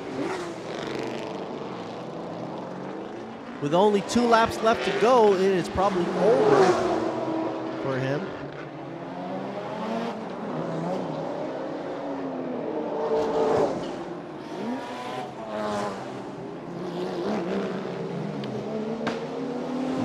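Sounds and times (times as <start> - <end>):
race car engines passing: 0.0 - 20.0.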